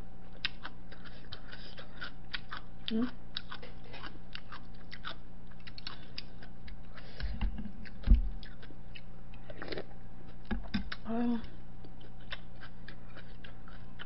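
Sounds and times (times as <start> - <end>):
person chewing: 0.3 - 14.0
dull low thump: 7.3 - 8.4
wet mouth clicks: 10.5 - 11.1.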